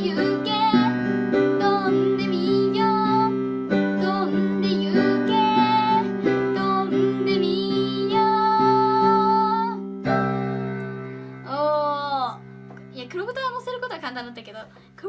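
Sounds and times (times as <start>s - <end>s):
girl singing: 0.0s - 10.7s, 11.4s - 12.4s
slow piano melody: 0.0s - 13.8s.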